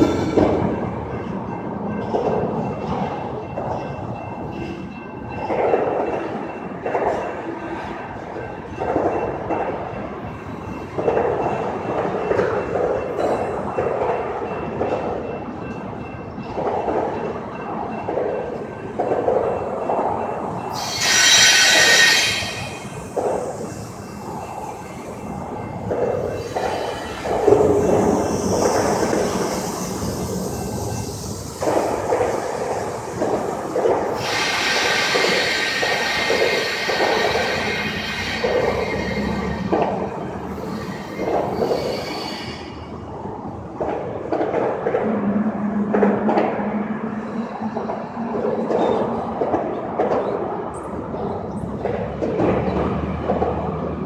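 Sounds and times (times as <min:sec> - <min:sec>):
train clattering: 0:00.0 - 0:54.0
train wheels squealing: 0:20.2 - 0:43.0.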